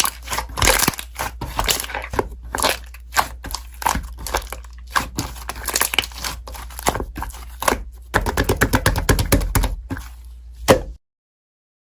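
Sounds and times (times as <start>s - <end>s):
slime crackling and popping: 0.0s - 7.8s.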